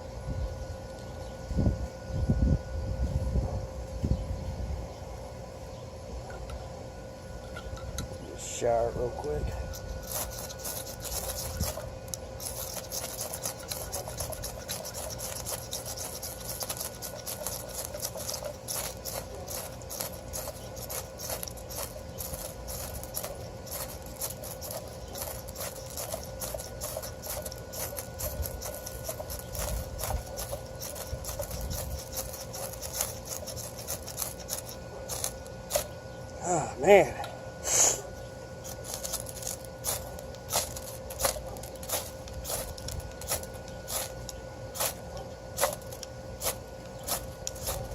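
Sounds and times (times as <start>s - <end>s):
ferro rod rasping scrapes: 9.5s - 35.9s, 38.6s - 47.9s.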